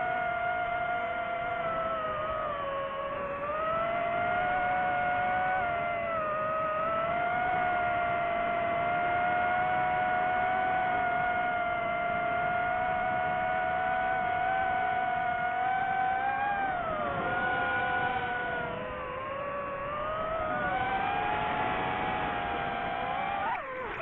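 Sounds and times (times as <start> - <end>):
drone propellers whining: 0.0 - 24.0.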